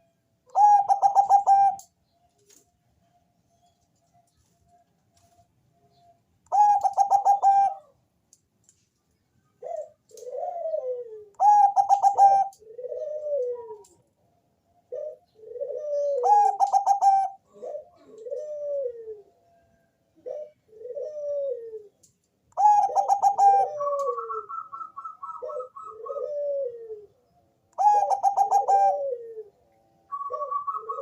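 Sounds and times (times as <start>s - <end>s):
dove cooing: 0.5s - 1.9s, 6.5s - 8.0s, 9.6s - 14.0s, 14.9s - 19.4s, 20.2s - 31.0s.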